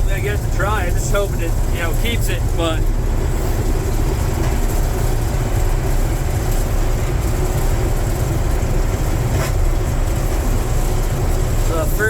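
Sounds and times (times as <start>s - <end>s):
combine harvester rumbling: 0.0s - 12.0s.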